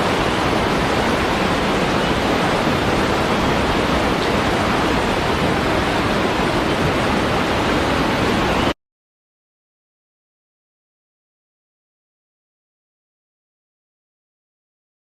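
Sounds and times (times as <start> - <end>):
waterfall rushing: 0.0 - 8.8.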